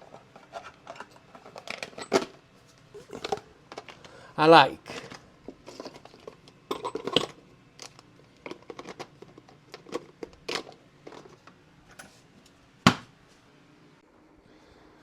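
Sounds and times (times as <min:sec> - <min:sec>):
metal tools clinking: 0:00.9 - 0:02.3, 0:05.7 - 0:07.4
louder knocks: 0:12.9 - 0:13.1.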